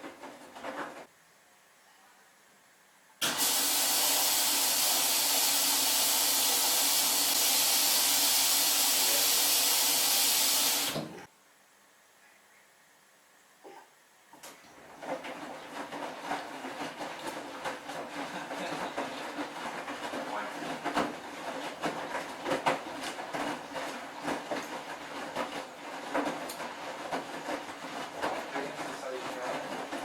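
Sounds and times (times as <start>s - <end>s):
knocks and clatter: 0.0s - 1.1s, 14.9s - 30.0s
washing machine motor hum: 3.2s - 11.3s, 14.5s - 30.0s.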